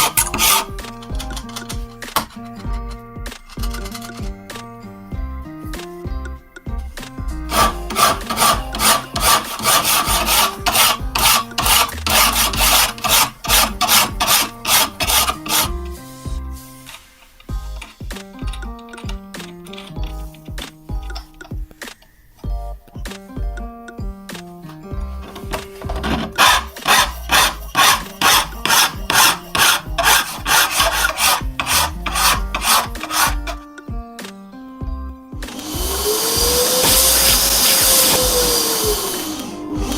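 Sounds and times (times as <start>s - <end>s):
hand filing or sanding strokes: 0.0s - 2.4s, 7.5s - 18.0s, 25.2s - 33.6s, 35.6s - 39.9s
background music: 0.0s - 39.9s.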